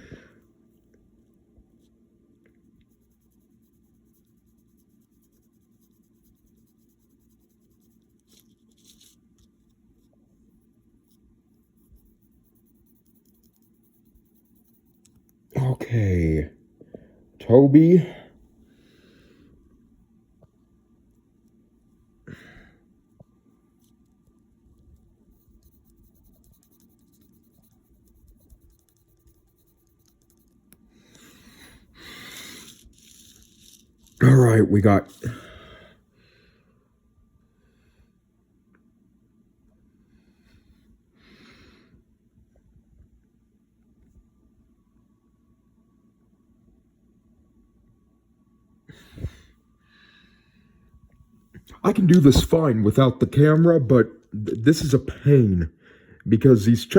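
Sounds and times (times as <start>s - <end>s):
low room hum: 0.0s - 56.9s
pen scratching on paper: 2.7s - 15.3s, 25.2s - 30.7s.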